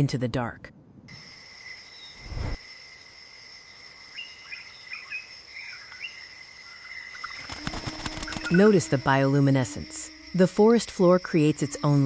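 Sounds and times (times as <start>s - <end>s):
high insect drone: 1.1s - 12.0s
low whoosh: 2.2s - 2.6s.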